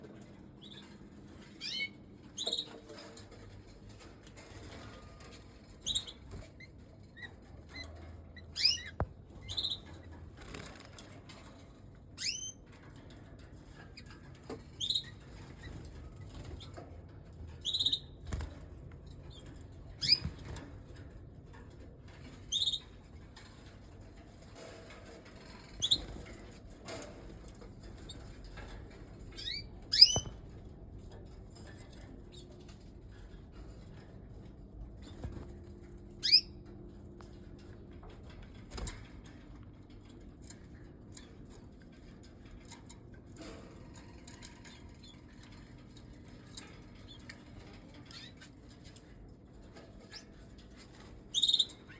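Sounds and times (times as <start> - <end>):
canaries chirping: 0.6 - 11.6, 12.2 - 13.2, 14.0 - 16.9, 17.6 - 18.5, 19.1 - 20.8, 22.2 - 23.7, 24.6 - 30.7, 36.0 - 36.7, 47.0 - 49.0, 49.8 - 51.9
wings fluttering: 9.4 - 11.1.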